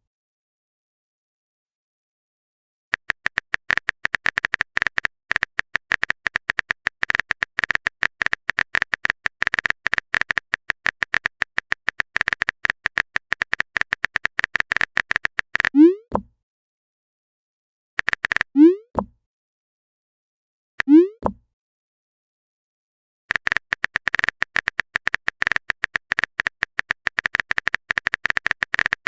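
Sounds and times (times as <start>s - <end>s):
typing clicks: 2.9s - 15.8s, 18.0s - 18.5s, 23.3s - 29.0s.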